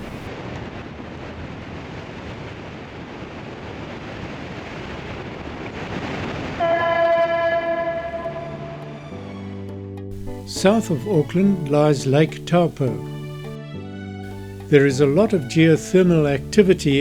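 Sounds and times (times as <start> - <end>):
rush of wind and water: 0.0 - 9.2
loud horn tone: 6.6 - 9.4.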